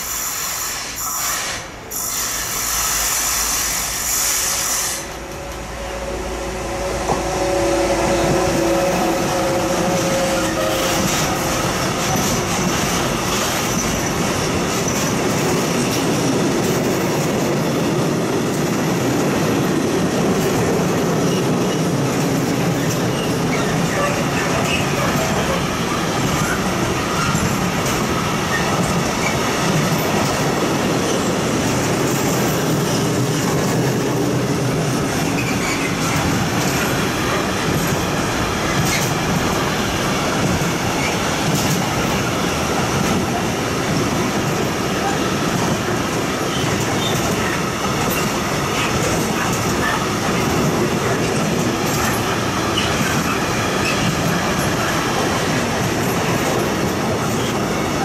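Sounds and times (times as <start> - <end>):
high wheel squeal: 0.0 - 12.8, 35.2 - 37.4
freight train wheels rumbling: 0.0 - 58.0.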